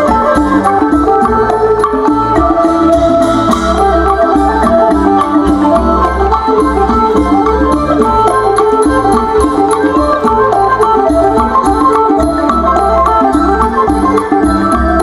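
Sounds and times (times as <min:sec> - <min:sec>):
folk dance music with drum: 0:00.0 - 0:15.0.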